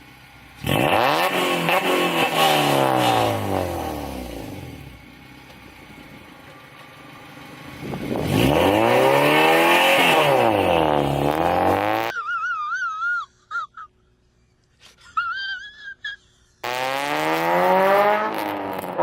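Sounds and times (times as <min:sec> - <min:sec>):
car engine revving: 0:00.6 - 0:12.1, 0:16.6 - 0:19.0.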